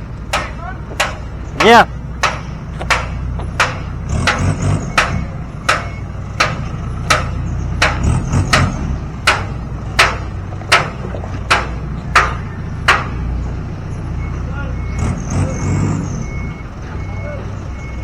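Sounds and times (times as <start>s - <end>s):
engine running: 0.0s - 18.0s
hammer strikes: 0.3s - 13.3s.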